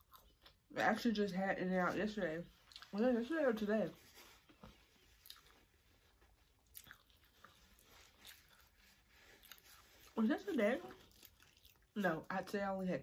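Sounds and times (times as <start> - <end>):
faint chewing of food: 0.0 - 0.9, 2.5 - 3.1, 4.1 - 12.0.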